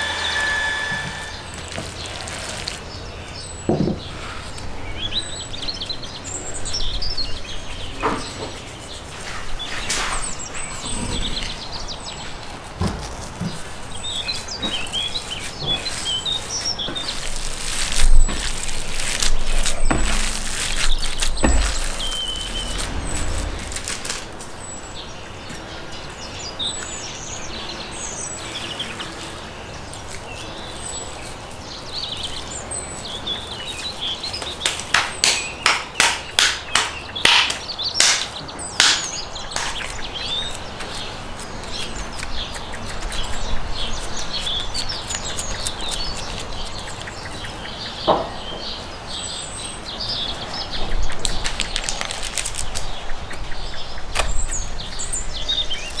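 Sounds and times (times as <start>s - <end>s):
small birds chirping: 1.2s - 56.0s
sharp slaps or taps: 34.6s - 40.0s.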